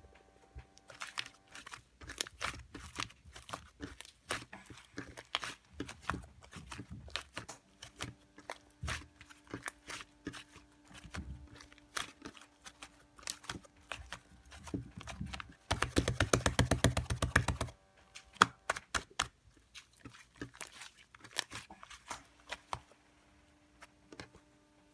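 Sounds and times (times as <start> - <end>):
slime squished by hand: 0.8 - 22.9
wet sticky clicks: 0.9 - 17.7.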